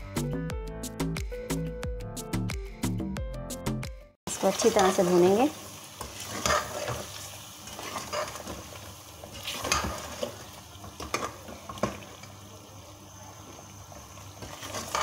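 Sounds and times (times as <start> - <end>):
meat sizzling in a pot: 4.3 - 15.0
metal spoon scraping a pot: 6.2 - 7.0, 7.7 - 8.6.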